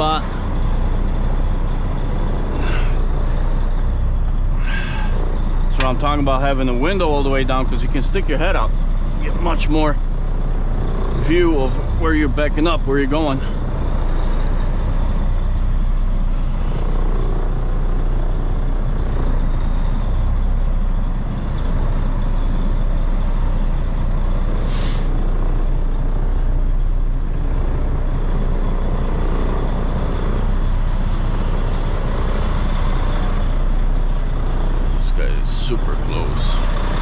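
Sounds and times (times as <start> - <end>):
diesel truck engine rumbling: 0.0 - 37.0
air brake hiss: 24.5 - 25.3.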